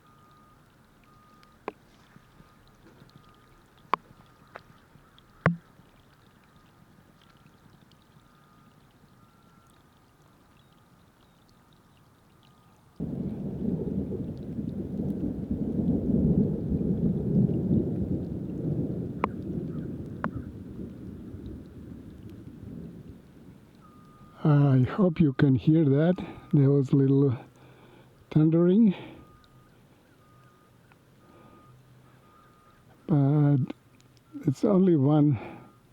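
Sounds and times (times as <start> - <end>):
thunder rumbling: 13.0 - 25.0.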